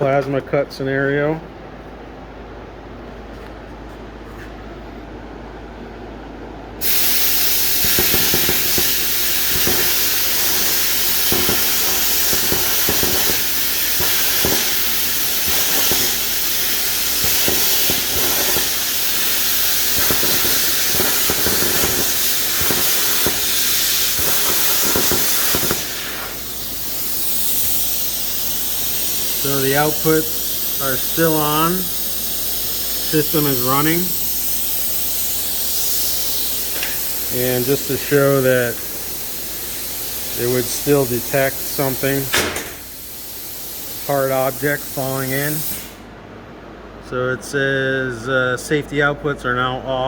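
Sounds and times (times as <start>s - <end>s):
plasma cutter hissing: 6.8s - 46.0s
crackling: 7.0s - 28.0s.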